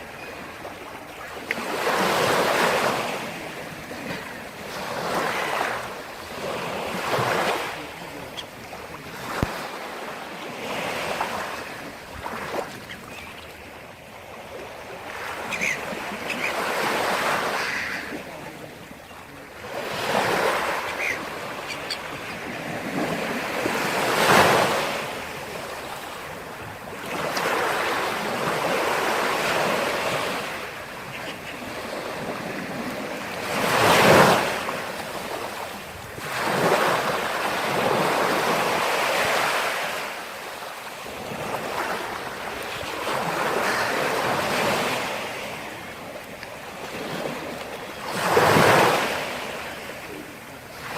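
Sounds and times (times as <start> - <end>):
waves breaking on shore: 0.0 - 50.9.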